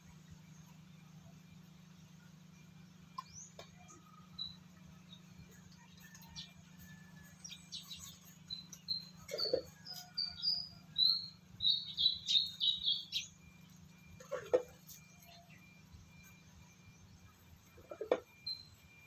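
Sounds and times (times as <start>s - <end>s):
steady low hum: 0.0s - 19.0s
bird chirping: 2.9s - 19.0s
lower-pitched bird cries: 7.3s - 13.4s.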